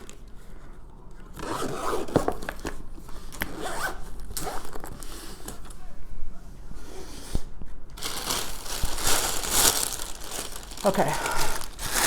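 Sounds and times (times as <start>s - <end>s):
zipper being pulled: 3.4s - 4.7s.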